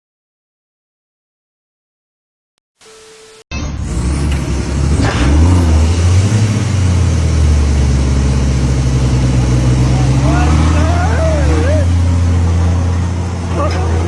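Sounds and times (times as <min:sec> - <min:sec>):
vehicle engine running loud: 0:03.6 - 0:14.0.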